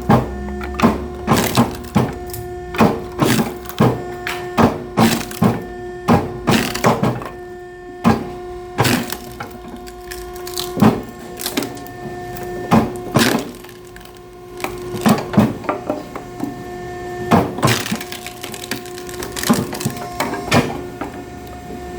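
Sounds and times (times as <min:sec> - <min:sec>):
firewood knocking and clattering: 0:00.0 - 0:07.4, 0:08.1 - 0:16.5
machine hum: 0:00.0 - 0:21.9.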